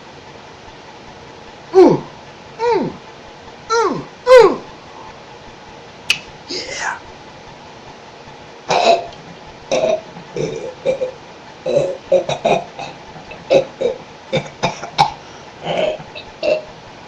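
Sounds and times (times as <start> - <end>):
person making burp-like noises: 8.7 - 16.7.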